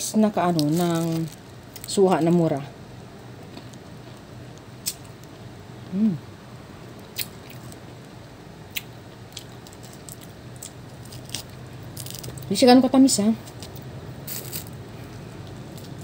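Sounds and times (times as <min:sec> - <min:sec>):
person humming: 0:05.9 - 0:06.2
person chewing juicy fruit: 0:07.1 - 0:08.0, 0:08.7 - 0:12.5, 0:13.5 - 0:16.0.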